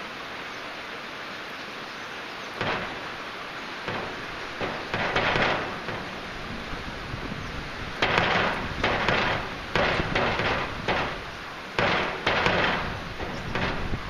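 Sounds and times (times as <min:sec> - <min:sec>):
heavy rain falling: 0:00.0 - 0:14.0
surges of splashing: 0:02.5 - 0:14.0.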